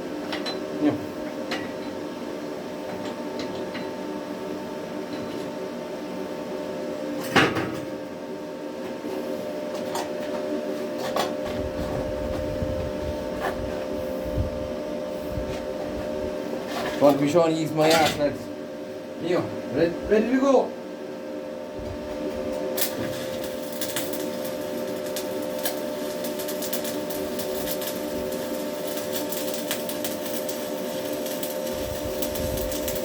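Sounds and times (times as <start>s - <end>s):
welder humming: 8.8s - 33.0s.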